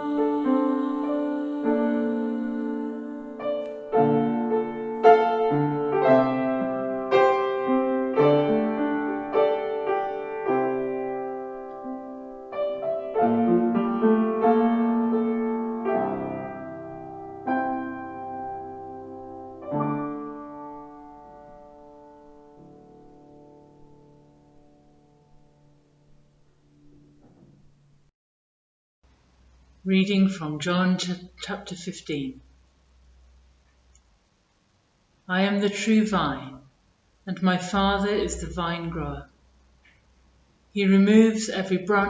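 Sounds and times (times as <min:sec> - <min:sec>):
slow piano chords: 0:00.0 - 0:28.0.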